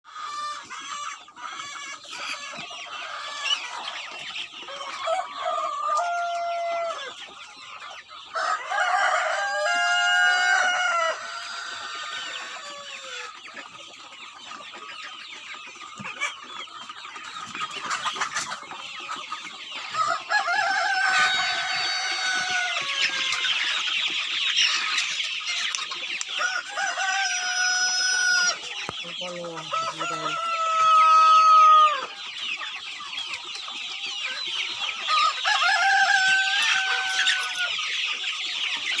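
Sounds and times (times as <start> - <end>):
chickens clucking: 0.0 - 39.0
roosters crowing: 0.1 - 7.3, 8.2 - 13.4, 19.4 - 24.0, 26.2 - 32.4, 34.0 - 38.2.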